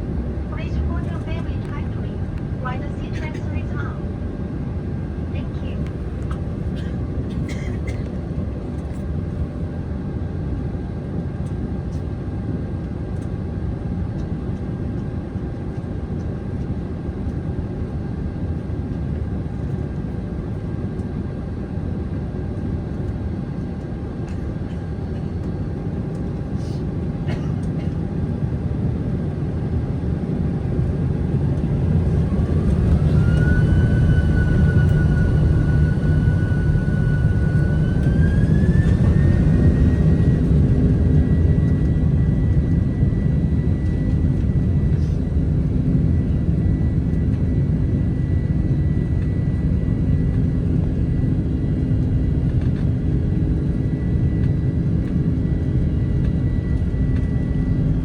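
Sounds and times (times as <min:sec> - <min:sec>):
heavy rumble: 0:00.0 - 0:09.5
jet engine whine: 0:00.0 - 0:58.0.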